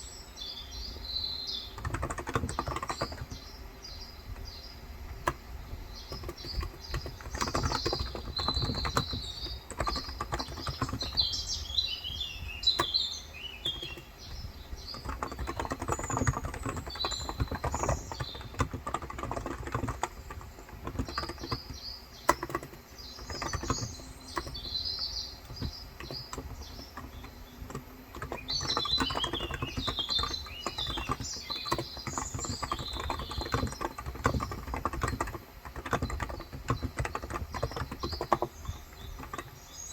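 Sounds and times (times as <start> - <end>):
small birds chirping: 0.0 - 39.9
keyboard typing: 1.6 - 3.6, 4.3 - 39.9.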